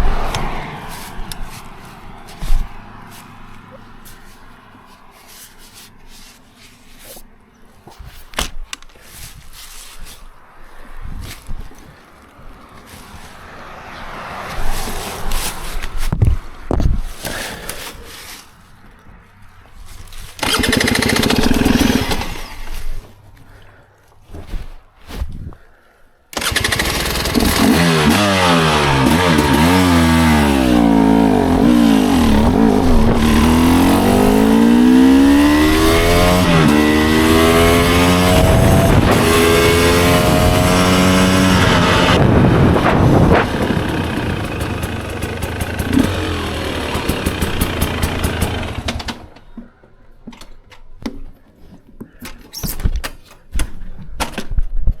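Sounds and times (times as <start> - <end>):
dirt bike engine revving: 20.4 - 22.8, 26.4 - 49.4.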